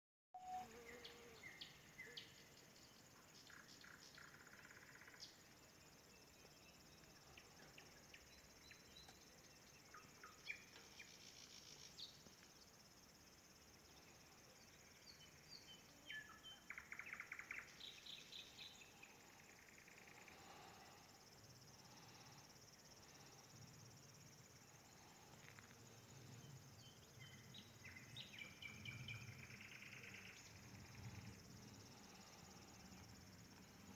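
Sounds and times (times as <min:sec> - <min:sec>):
nightingale singing: 0:00.4 - 0:12.8, 0:13.9 - 0:20.5, 0:26.4 - 0:31.4.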